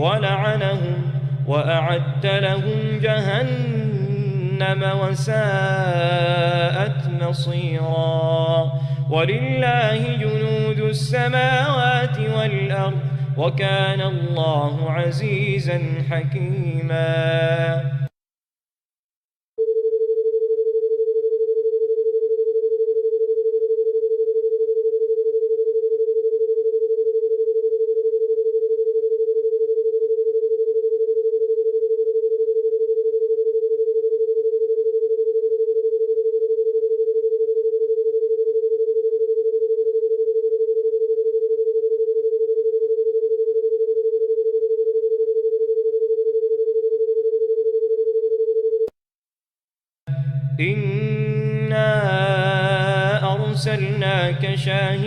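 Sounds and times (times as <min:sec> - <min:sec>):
person reciting verse: 0:00.0 - 0:18.1, 0:50.1 - 0:55.0
electronic sine tone: 0:00.0 - 0:18.2, 0:19.6 - 0:49.0, 0:50.1 - 0:55.0.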